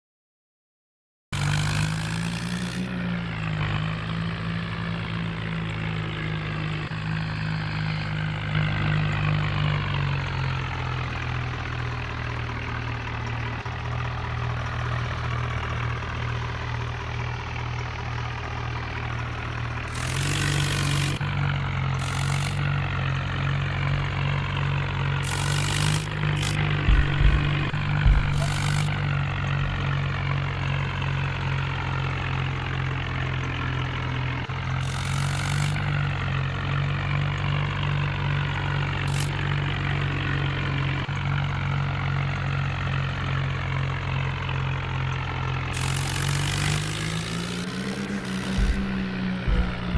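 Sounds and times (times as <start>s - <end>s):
tractor engine running: 1.4s - 49.9s.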